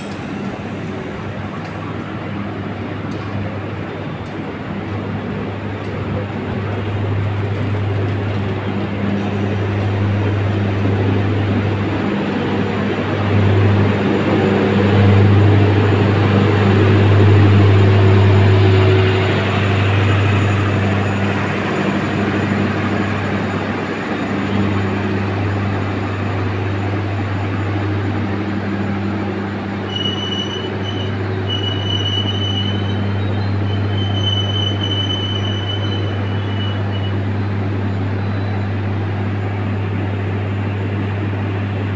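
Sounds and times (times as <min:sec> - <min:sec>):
train running on rails: 0:00.0 - 0:41.9
steel wheels squealing on rail: 0:29.6 - 0:38.9.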